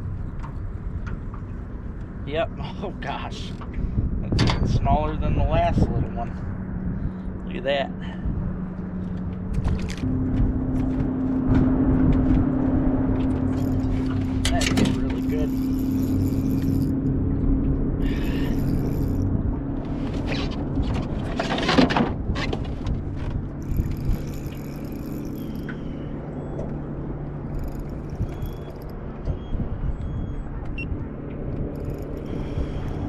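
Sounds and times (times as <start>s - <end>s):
boat motor humming: 8.5s - 33.0s.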